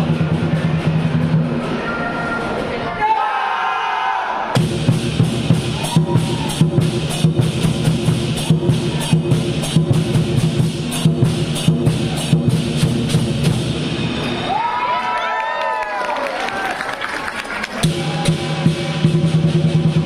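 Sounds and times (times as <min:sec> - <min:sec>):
large drum beating: 0:04.6 - 0:14.2, 0:17.8 - 0:20.0
cymbals clashing: 0:04.6 - 0:14.7, 0:17.8 - 0:20.0.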